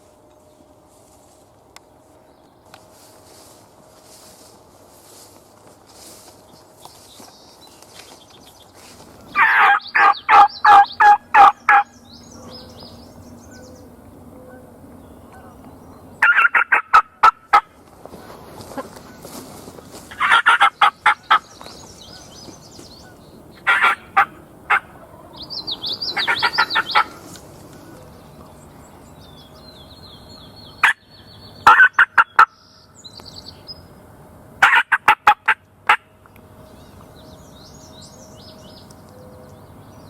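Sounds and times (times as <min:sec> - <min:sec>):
turkey calling: 0:09.3 - 0:15.6, 0:16.2 - 0:28.6, 0:30.1 - 0:32.6, 0:34.6 - 0:36.1.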